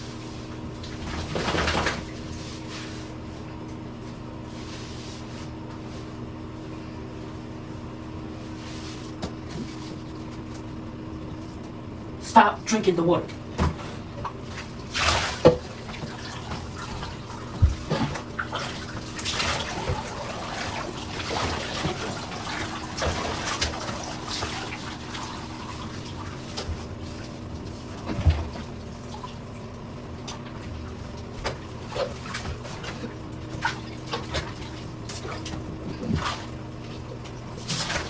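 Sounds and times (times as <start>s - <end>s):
steady low hum: 0.0s - 38.0s
bathwater splashing and dripping: 14.2s - 38.0s.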